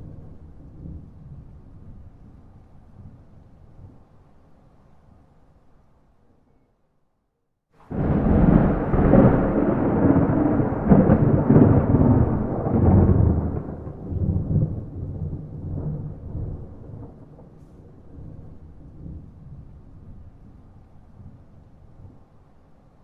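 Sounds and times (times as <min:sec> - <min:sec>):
thunder rolling: 0:07.8 - 0:20.6.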